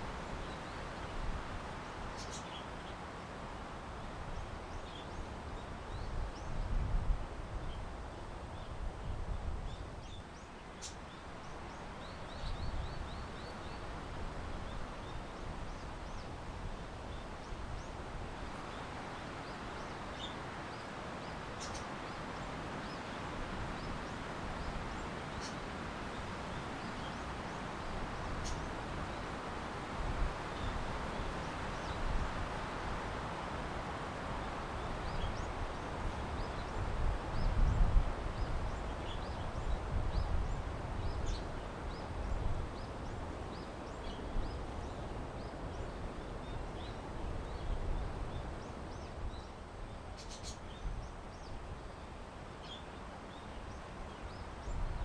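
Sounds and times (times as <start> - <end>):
small birds chirping: 2.1 - 3.0, 9.7 - 13.9, 18.6 - 29.3, 34.4 - 54.9
wind gusting on microphone: 11.3 - 52.3, 53.3 - 55.0.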